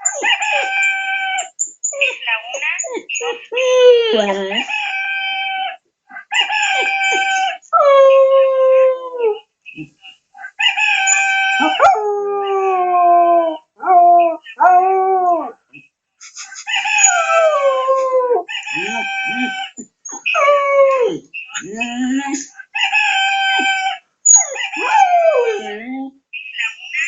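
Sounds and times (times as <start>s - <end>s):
puppy yelping: 0.0s - 4.0s, 4.6s - 7.7s, 10.4s - 12.0s, 16.7s - 21.2s, 22.8s - 25.7s
puppy howling: 0.0s - 9.4s, 10.4s - 15.6s, 16.7s - 26.1s.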